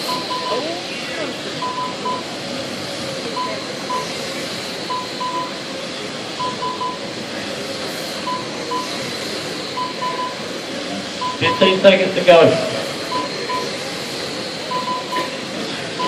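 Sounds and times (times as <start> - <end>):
timer beeping: 0.0 - 0.7, 1.6 - 2.3, 3.4 - 4.2, 4.9 - 5.6, 6.4 - 7.1, 8.2 - 9.0, 9.8 - 10.5, 11.2 - 11.8, 13.1 - 13.8, 14.7 - 15.3
track noise: 0.0 - 16.0.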